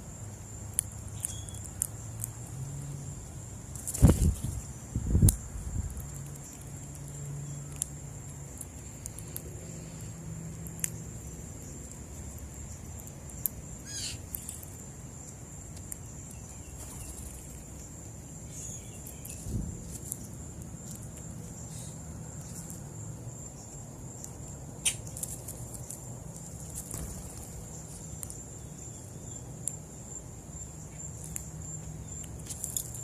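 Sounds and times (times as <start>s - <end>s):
high-pitched insect trill: 3.9s - 33.0s
bird call: 13.9s - 14.2s.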